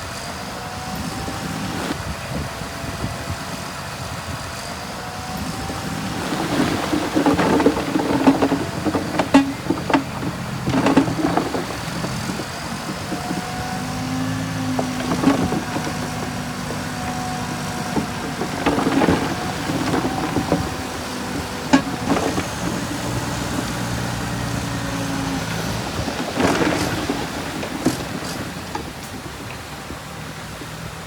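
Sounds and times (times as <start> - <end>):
heavy machinery diesel engine running: 0.0 - 31.0
metal and dirt clanking: 5.6 - 29.9.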